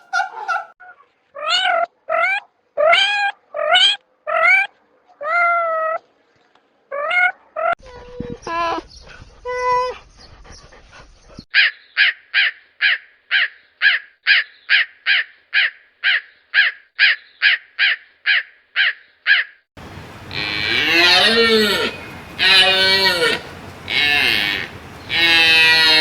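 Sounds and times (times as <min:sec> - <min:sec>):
short falling animal calls: 0:15.1 - 0:26.0
low moo-like animal call: 0:19.8 - 0:26.0.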